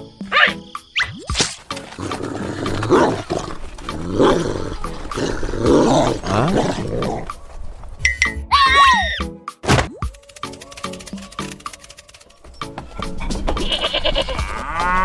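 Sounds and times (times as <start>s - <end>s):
long growling roar: 2.0s - 7.3s.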